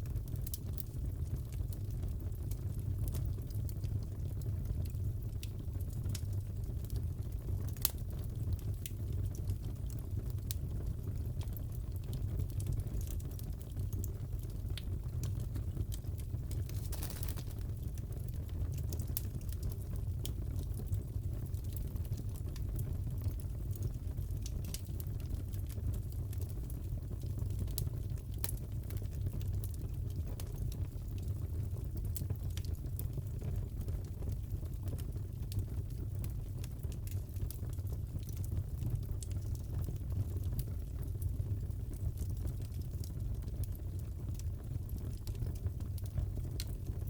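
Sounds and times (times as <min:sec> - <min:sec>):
wood fire crackling: 0:00.0 - 0:47.0
sharp pops of fire: 0:16.5 - 0:18.0.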